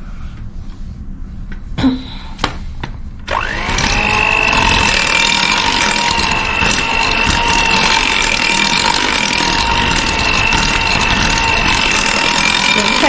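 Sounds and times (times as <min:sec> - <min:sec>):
electric mixer motor whine: 0:03.3 - 0:13.0.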